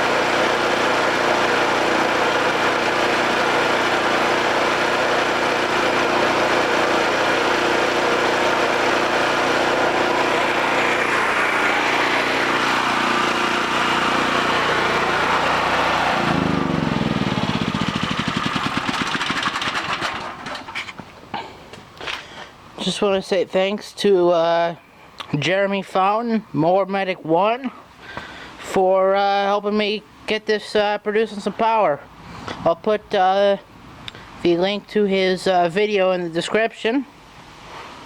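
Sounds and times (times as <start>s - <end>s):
generator engine running: 0.0s - 21.1s.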